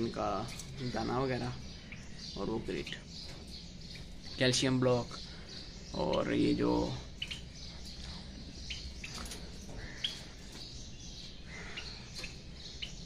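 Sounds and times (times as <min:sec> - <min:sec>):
low steady background noise: 0:00.0 - 0:13.0
small birds chirping: 0:00.0 - 0:13.0.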